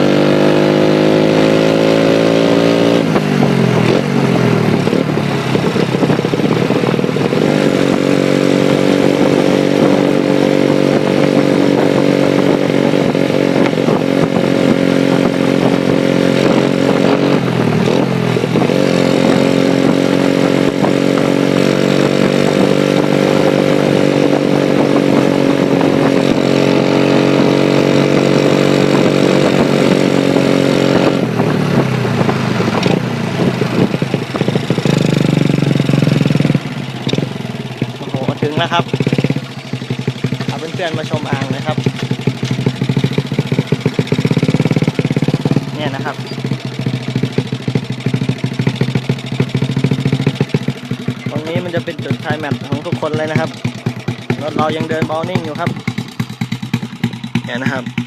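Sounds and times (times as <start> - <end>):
minibike engine pulling: 31.7 - 58.0.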